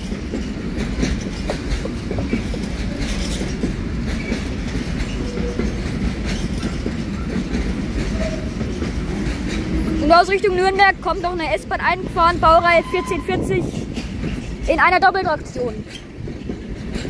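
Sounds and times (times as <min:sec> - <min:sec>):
freight train wheels rumbling: 0:00.0 - 0:17.0
wheels clicking over rail joints: 0:00.0 - 0:17.0.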